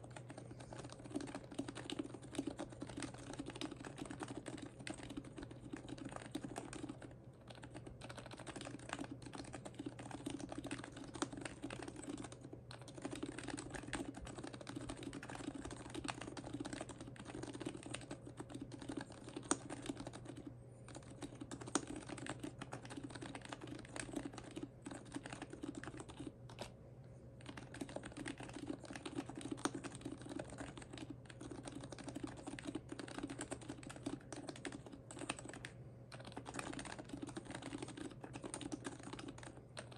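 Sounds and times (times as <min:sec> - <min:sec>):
fast muted keyboard typing: 0:00.0 - 0:26.8, 0:27.4 - 0:39.9.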